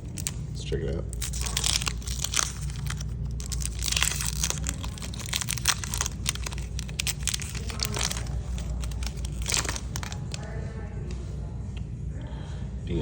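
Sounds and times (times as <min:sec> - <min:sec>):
foil wrapper tearing and crinkling: 0:00.0 - 0:00.4, 0:01.1 - 0:10.5.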